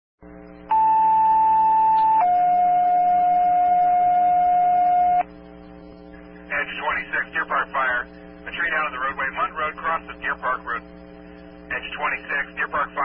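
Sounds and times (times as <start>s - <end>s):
low radio hum: 0.2s - 13.0s.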